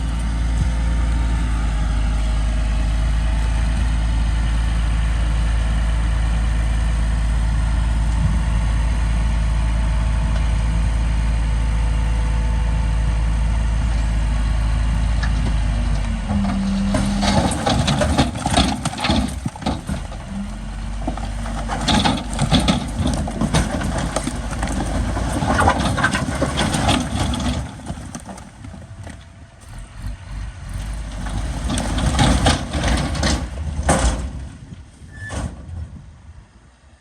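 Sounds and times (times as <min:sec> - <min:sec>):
heavy diesel machinery engine: 0:00.0 - 0:36.9
metallic clanks and knocks: 0:16.3 - 0:29.9, 0:30.7 - 0:34.4.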